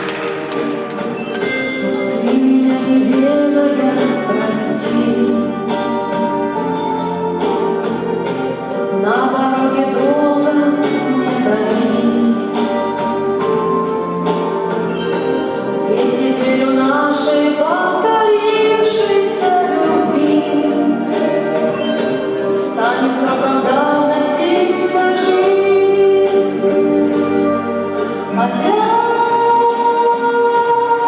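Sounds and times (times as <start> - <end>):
backing track with beat: 0.0 - 31.0
two women singing: 2.1 - 6.8, 8.9 - 12.9, 15.8 - 21.8, 22.4 - 27.6, 28.3 - 31.0.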